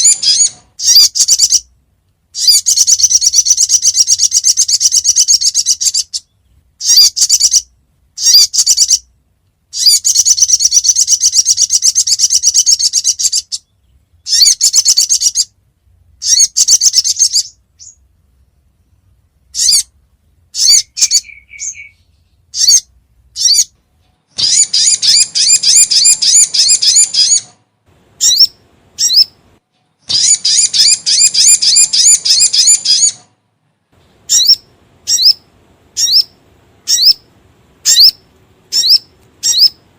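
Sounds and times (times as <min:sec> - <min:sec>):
sharp bird notes: 0:00.0 - 0:01.7, 0:19.5 - 0:27.6, 0:28.2 - 0:29.4, 0:30.0 - 0:33.3, 0:34.2 - 0:39.9
bird chirping trills: 0:00.0 - 0:33.4, 0:34.0 - 0:39.9.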